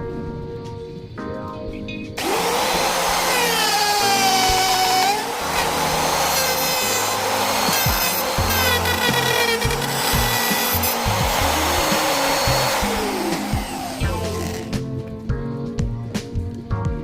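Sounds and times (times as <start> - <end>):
background music: 0.0 - 17.0
router cutting wood: 2.2 - 15.0.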